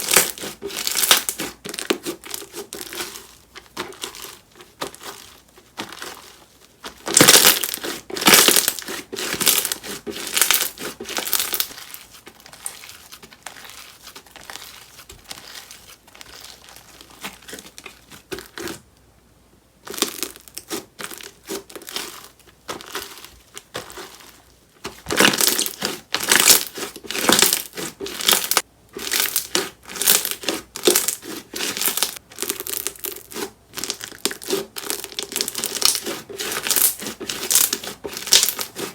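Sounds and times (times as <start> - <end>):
slime crackling and popping: 0.0 - 3.2, 6.9 - 17.5, 25.1 - 38.7.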